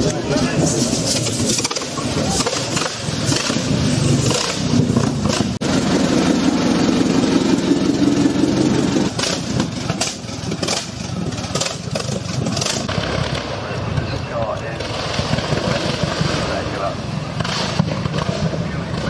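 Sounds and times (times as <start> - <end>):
car engine deep rumble: 0.0 - 19.0
sharp cracks: 1.2 - 5.6, 9.1 - 19.0.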